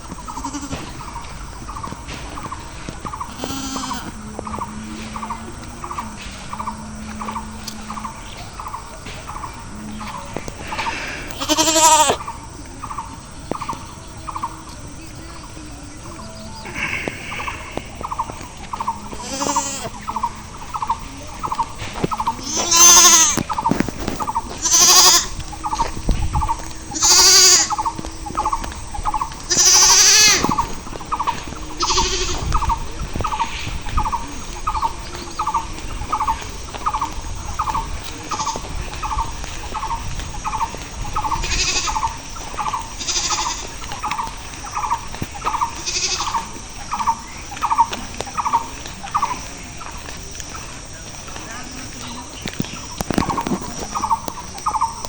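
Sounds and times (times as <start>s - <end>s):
goats bleating: 0.1s - 2.6s, 3.2s - 5.7s, 9.9s - 12.2s, 16.5s - 20.2s, 22.1s - 23.6s, 24.2s - 28.6s, 29.4s - 32.8s, 41.3s - 44.0s, 45.6s - 46.5s.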